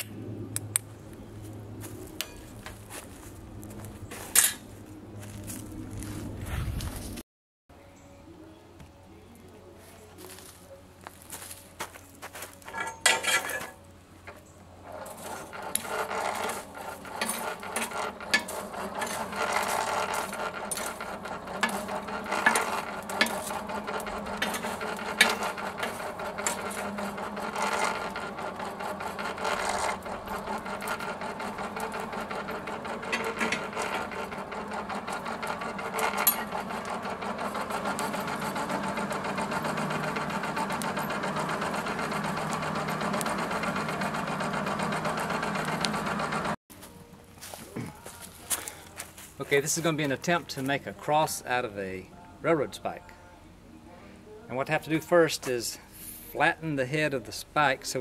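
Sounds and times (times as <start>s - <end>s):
irregular clicks and knocks: 14.3s - 46.6s
small machine running: 14.3s - 46.6s.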